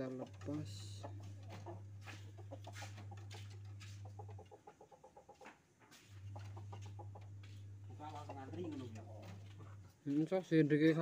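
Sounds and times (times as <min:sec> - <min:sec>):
low steady hum: 0:00.0 - 0:04.4, 0:06.1 - 0:10.9.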